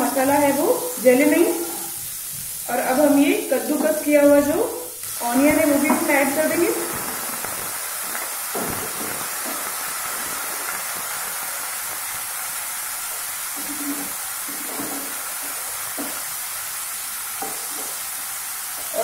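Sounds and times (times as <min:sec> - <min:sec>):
onion sizzling in oil: 0:00.0 - 0:19.0.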